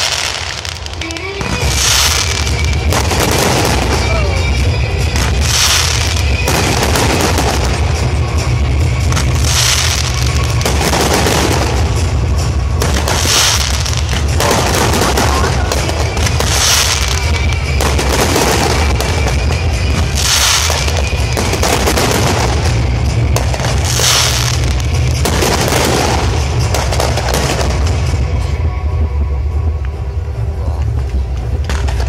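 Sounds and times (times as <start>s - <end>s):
fireworks booms: 0.0s - 28.4s
fireworks crackling: 0.0s - 32.0s.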